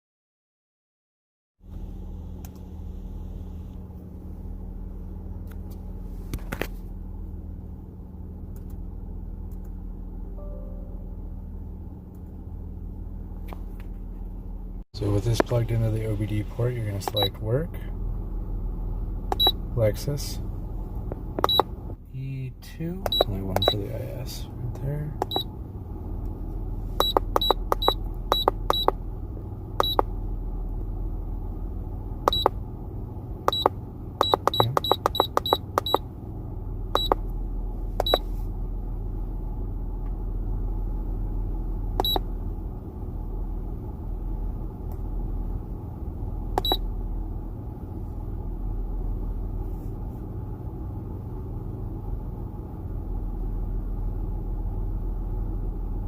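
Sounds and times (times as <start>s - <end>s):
low hum: 1.6s - 56.0s
short high beeps: 33.5s - 36.0s, 37.0s - 37.2s.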